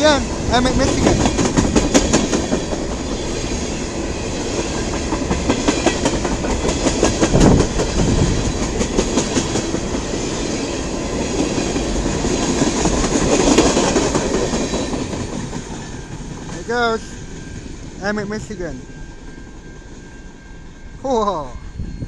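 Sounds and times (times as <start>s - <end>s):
freight train wheels clicking: 0.0s - 18.0s.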